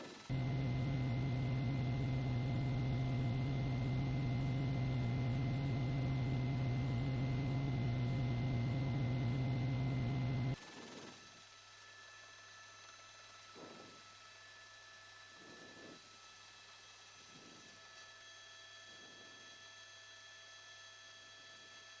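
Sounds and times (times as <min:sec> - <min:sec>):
loud mechanical drone: 0:00.3 - 0:10.6.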